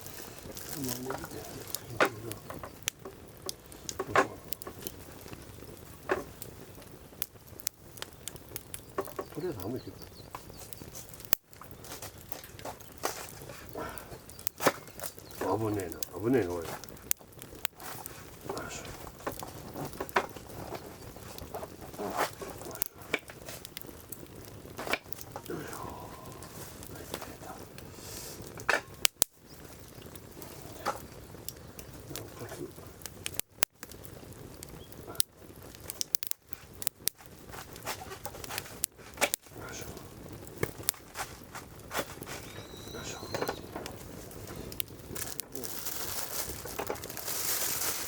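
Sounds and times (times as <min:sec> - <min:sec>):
campfire crackling and popping: 0:00.0 - 0:48.0.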